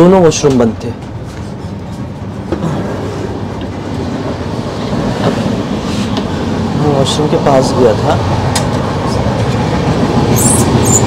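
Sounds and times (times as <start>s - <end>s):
train coach low rumble: 0.0s - 11.0s.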